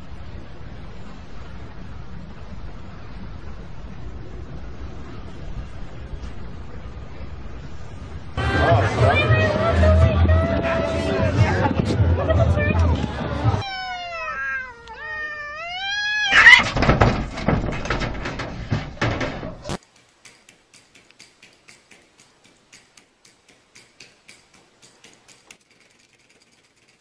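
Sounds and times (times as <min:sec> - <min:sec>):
cat meowing: 0:13.6 - 0:16.7
faint clicks: 0:19.7 - 0:27.0.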